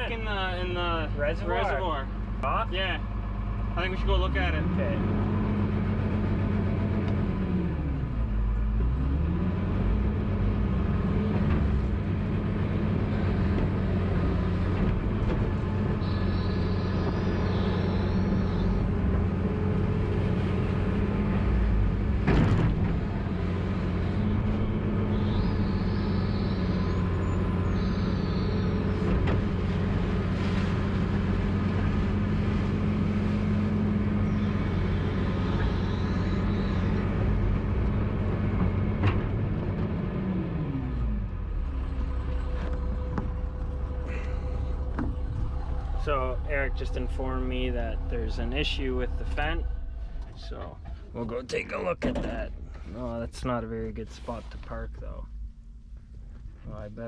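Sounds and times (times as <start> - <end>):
tractor engine running: 9.8 - 54.1.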